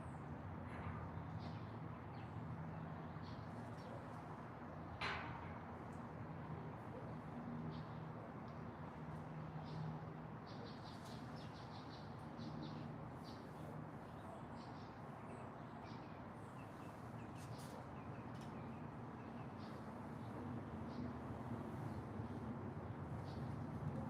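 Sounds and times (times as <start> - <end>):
songbirds chirping: 9.6 - 21.2.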